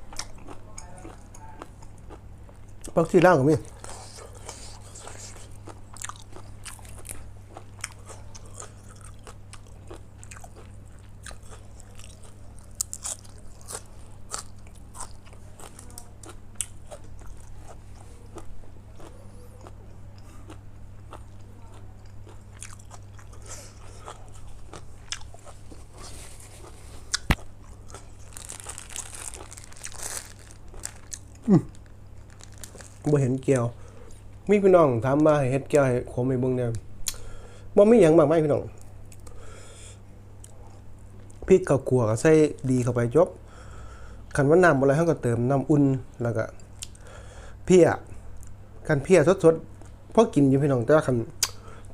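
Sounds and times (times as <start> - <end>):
person chewing crunchy food: 0.0 - 3.0, 3.6 - 34.4.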